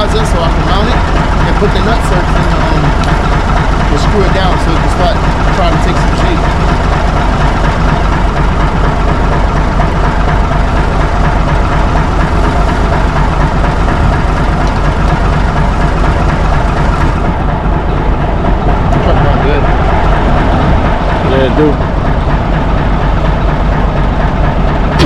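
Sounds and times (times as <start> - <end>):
heavy engine idling: 0.0 - 25.0.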